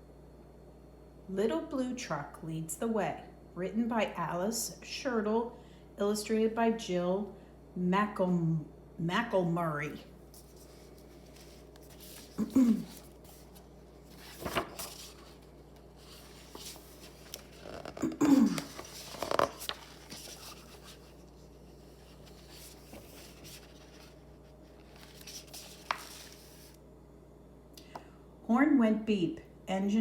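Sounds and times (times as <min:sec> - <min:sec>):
paper pages turning: 0:10.2 - 0:26.8.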